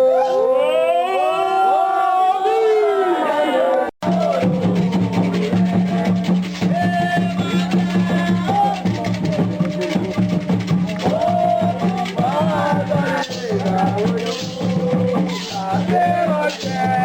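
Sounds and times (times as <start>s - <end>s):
voices singing: 3.5s - 17.0s
drums beating fast rhythm: 4.0s - 17.0s
wood-block-like percussion ticks: 4.0s - 17.0s.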